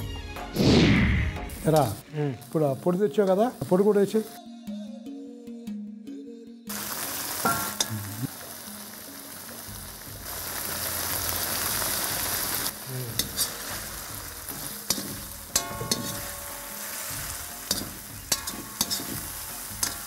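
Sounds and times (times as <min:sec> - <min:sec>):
prawns sizzling in hot oil: 0:01.5 - 0:04.4, 0:06.7 - 0:20.0
metal ladle scraping an iron pan: 0:14.5 - 0:20.0.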